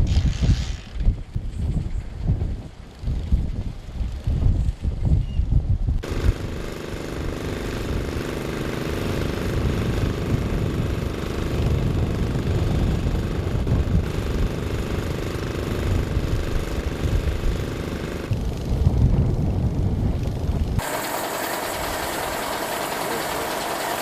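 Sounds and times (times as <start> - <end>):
machine hum: 20.8 - 24.0.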